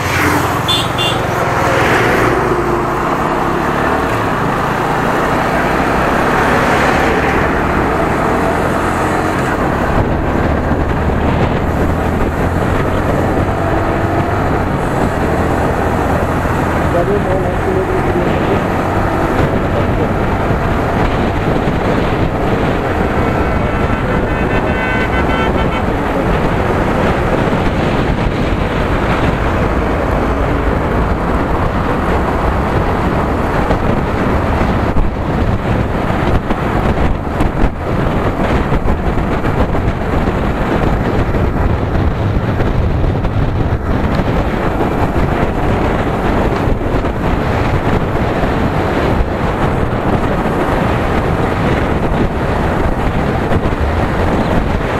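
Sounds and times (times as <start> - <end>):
motorcycle road noise: 0.0 - 54.9
wind buffeting microphone: 0.0 - 54.9
vehicle horn: 0.6 - 1.7, 23.6 - 26.1.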